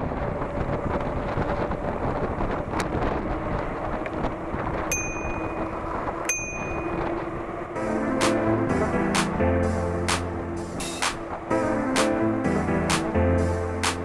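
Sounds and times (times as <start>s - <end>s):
muffled wind and rain: 0.0s - 14.0s
high ringing dings: 4.9s - 7.4s.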